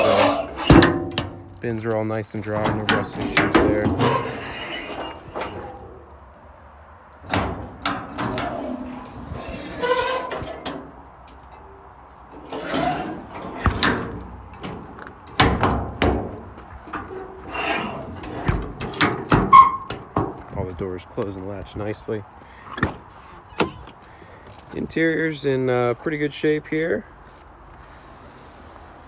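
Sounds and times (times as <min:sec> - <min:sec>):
latch clicks: 0:07.2 - 0:20.4.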